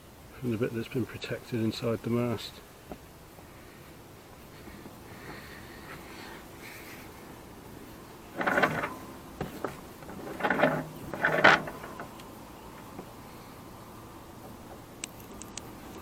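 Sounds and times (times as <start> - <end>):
rope rustling and scraping: 2.9 - 13.2
light clicks: 14.4 - 16.0.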